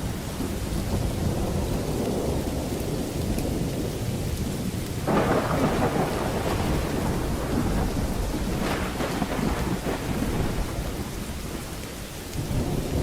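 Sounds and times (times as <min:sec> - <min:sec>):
heavy rain: 0:00.0 - 0:13.0
low rumble of thunder: 0:00.0 - 0:13.0
sharp thunderclap: 0:05.0 - 0:13.0.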